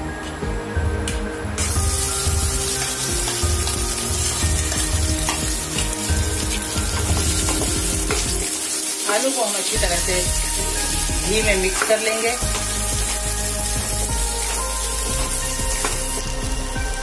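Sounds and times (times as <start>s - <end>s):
potatoes sizzling in hot oil: 1.6s - 17.0s
wooden spatula stirring: 2.7s - 16.0s.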